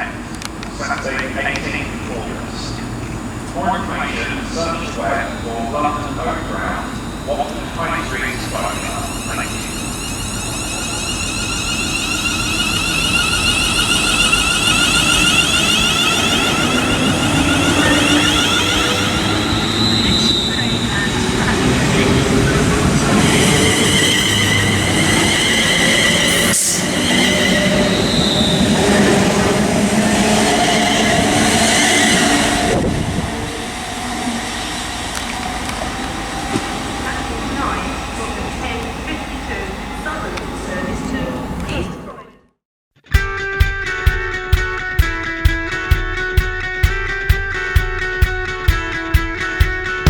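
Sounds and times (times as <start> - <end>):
high steady whine: 0.0 - 29.5
train wheels rumbling on rails: 0.0 - 42.2.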